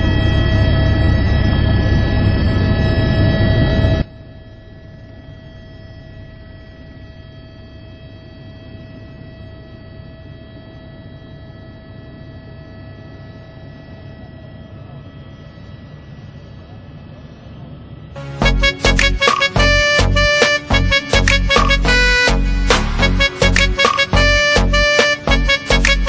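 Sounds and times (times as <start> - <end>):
helicopter engine and rotor noise: 0.0 - 18.2
constant high whine: 0.0 - 26.0.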